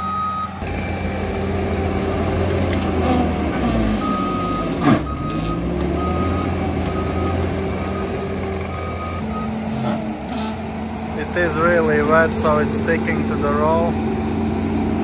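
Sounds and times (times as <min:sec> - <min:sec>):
reversing alarm beeps: 0:00.0 - 0:01.3, 0:03.8 - 0:09.6
diesel engine running: 0:00.0 - 0:15.0.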